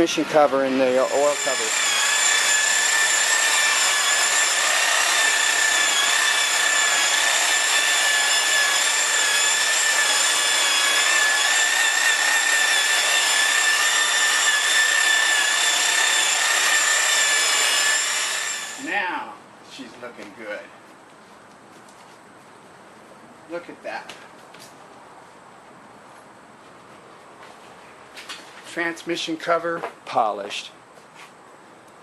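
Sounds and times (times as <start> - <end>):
electric buffer whining: 0.0 - 18.9.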